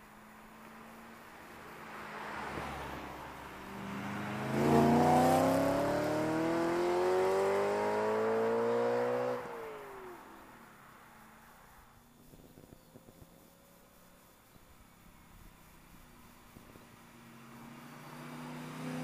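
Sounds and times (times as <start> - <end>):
car engine accelerating hard: 3.7 - 9.6, 17.5 - 19.0.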